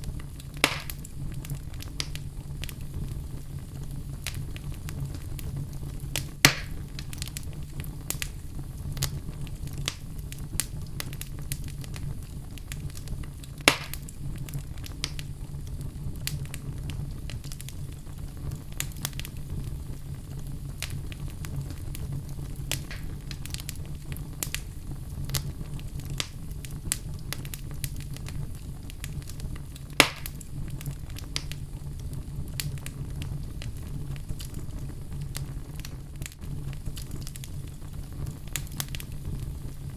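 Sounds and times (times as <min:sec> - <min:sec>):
fire crackling and snapping: 0:00.0 - 0:39.9
fire flames rumbling: 0:00.0 - 0:39.9
loud fire pops: 0:00.0 - 0:39.9.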